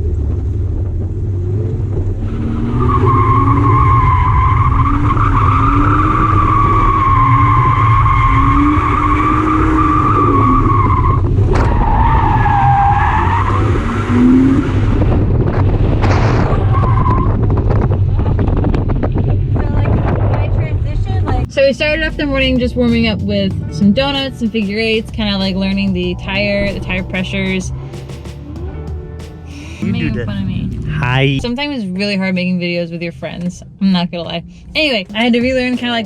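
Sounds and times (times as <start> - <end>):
steady engine note: 21.7 - 32.1.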